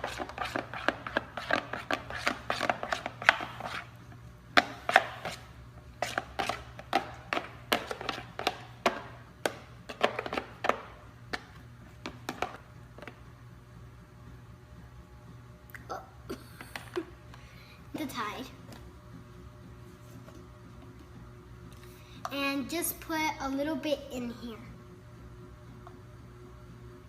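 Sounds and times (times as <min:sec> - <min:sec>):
spoon scraping and knocking bowl: 0:00.0 - 0:03.9.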